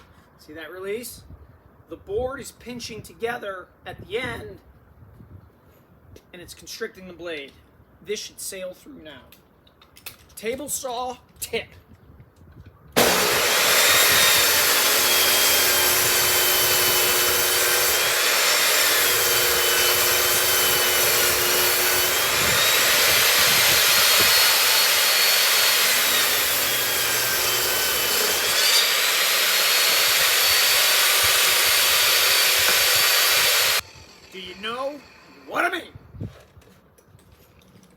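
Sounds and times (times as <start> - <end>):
table saw ripping a board: 13.0 - 35.4.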